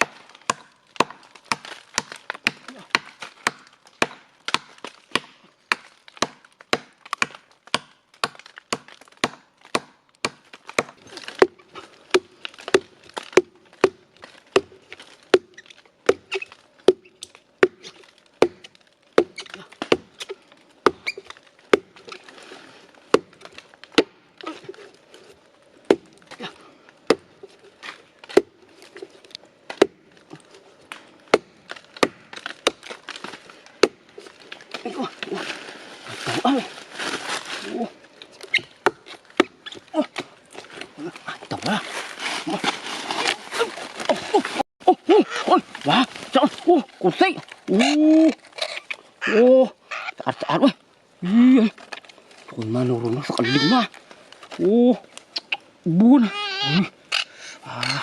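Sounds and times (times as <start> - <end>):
blade chopping wood: 0.0 - 22.0.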